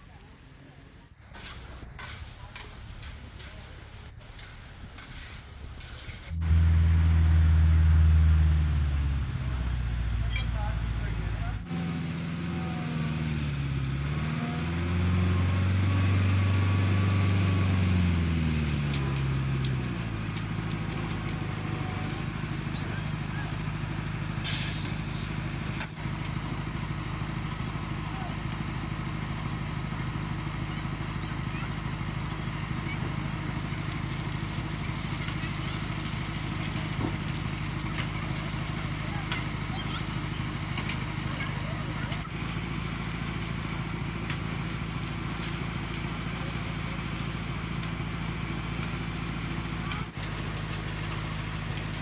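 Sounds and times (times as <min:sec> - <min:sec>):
diesel engine running at low revs: 0:06.0 - 0:52.0
vehicle engine revving: 0:06.2 - 0:27.6.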